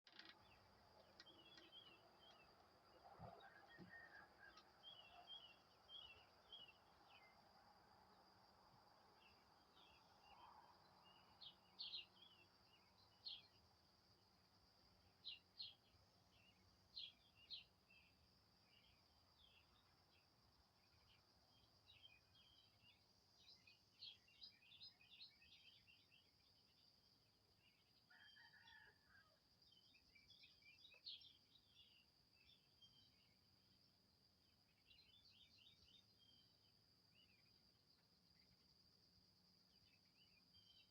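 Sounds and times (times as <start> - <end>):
small birds chirping: 0.0 - 7.4, 14.9 - 28.9, 29.8 - 38.6, 39.6 - 40.9.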